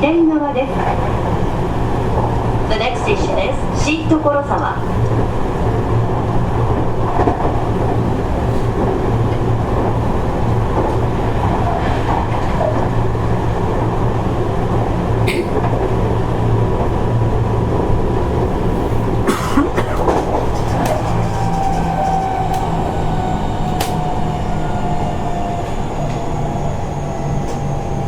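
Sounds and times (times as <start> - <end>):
electric train rumble: 0.0 - 28.0.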